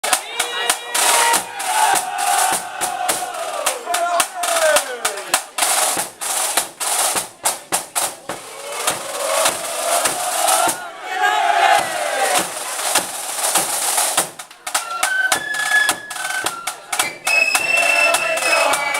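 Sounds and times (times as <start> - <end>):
people shouting and whooping: 0.0 - 5.4, 8.4 - 12.6, 15.0 - 18.9
snare drums rattling: 0.0 - 10.9, 11.5 - 18.9.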